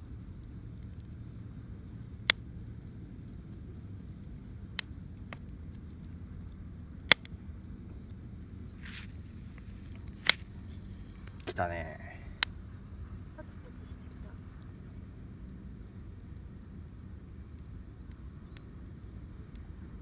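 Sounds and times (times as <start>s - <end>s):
campfire crackling: 0.0s - 20.0s
low fire rumble: 0.0s - 20.0s
sharp fire pops: 4.6s - 11.6s.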